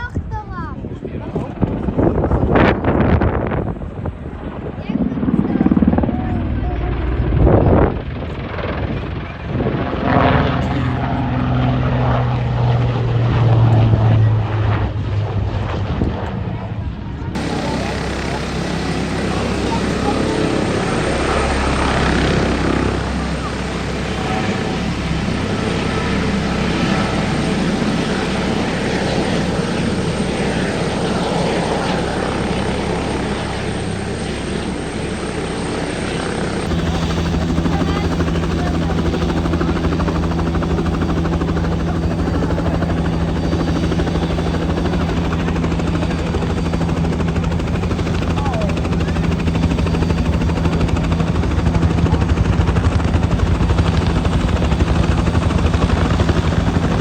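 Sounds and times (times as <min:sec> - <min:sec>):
helicopter rotor and turbine: 0:00.0 - 0:57.0.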